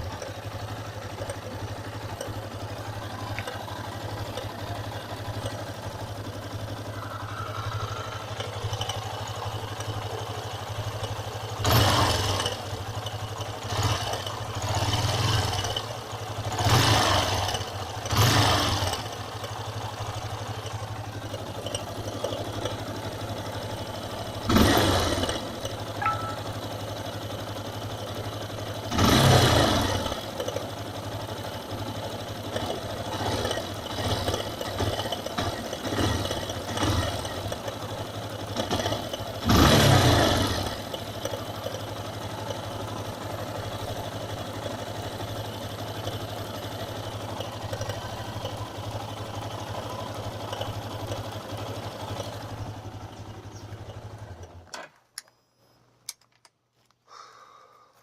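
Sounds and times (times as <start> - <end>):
motorcycle engine idling: 0.0 - 54.7
throttle blips: 26.0 - 26.8.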